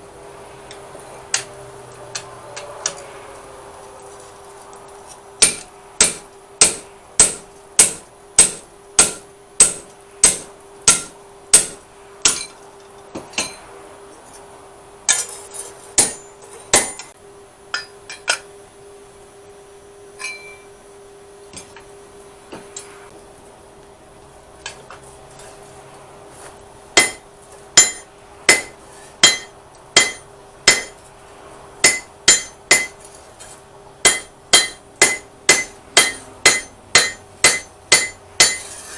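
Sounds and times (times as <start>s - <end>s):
hammer striking steel on anvil: 0.7s - 3.0s, 5.4s - 12.6s, 13.2s - 13.7s, 15.1s - 18.5s, 20.2s - 20.8s, 27.0s - 31.1s, 31.8s - 38.9s
steady hum: 4.8s - 38.9s.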